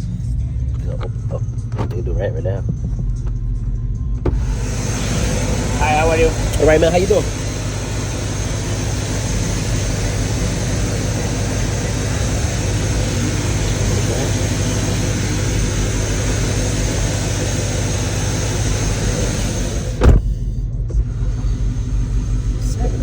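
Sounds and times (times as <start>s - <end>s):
car engine idling: 0.0s - 23.0s
loud thump: 4.2s - 4.6s, 19.6s - 20.3s.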